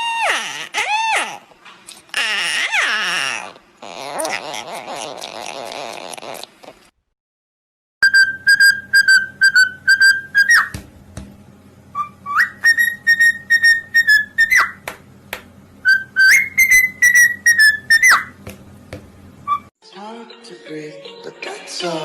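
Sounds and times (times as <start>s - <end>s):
parrot whistling: 8.0s - 10.8s, 11.9s - 14.8s, 15.8s - 18.4s, 19.4s - 19.7s.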